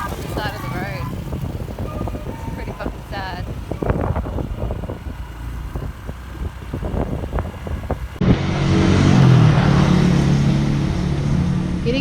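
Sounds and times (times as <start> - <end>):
road and wind noise: 0.0 - 12.0
vehicle engine running: 0.0 - 12.0
low rumble: 6.8 - 12.0.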